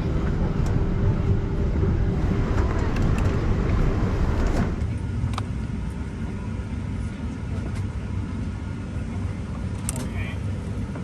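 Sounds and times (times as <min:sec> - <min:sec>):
air-conditioning rumble: 0:00.0 - 0:11.0.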